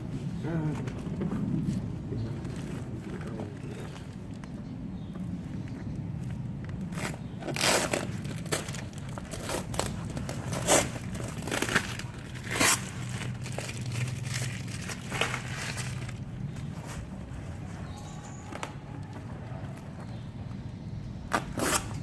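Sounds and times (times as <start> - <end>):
steady low hum: 0.0 - 22.0
packaging crinkling and tearing: 7.0 - 16.3.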